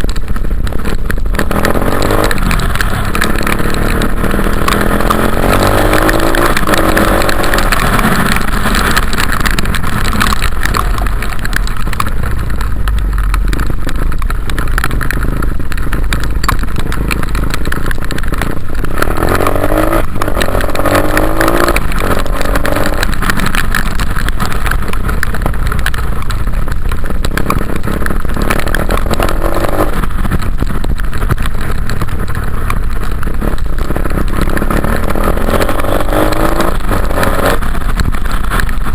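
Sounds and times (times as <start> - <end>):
dirt bike engine revving: 1.4 - 11.2, 18.9 - 23.1, 33.8 - 37.6.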